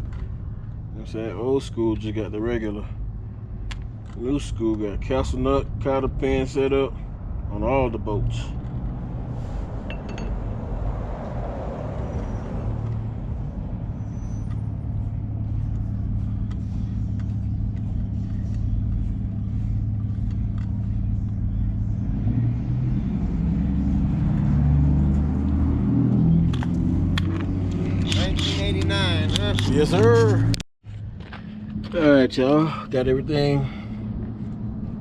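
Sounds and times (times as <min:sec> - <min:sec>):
light metallic clinks: 0:09.9 - 0:10.5
vehicle engine running: 0:12.1 - 0:35.0.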